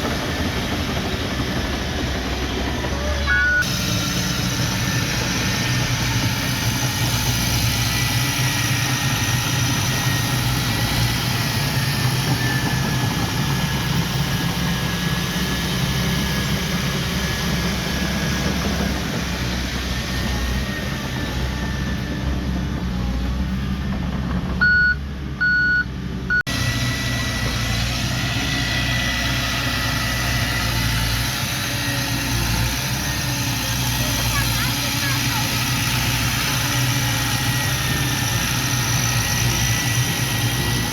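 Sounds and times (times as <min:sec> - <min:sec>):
diesel machinery engine running: 0:00.0 - 0:40.9
reversing alarm beeps: 0:03.2 - 0:03.7, 0:24.6 - 0:26.5.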